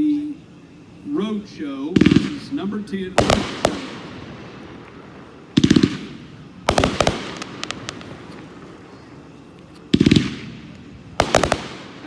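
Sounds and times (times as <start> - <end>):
firework bangs with echo: 1.9 - 12.0
faint firework pops: 3.2 - 12.0.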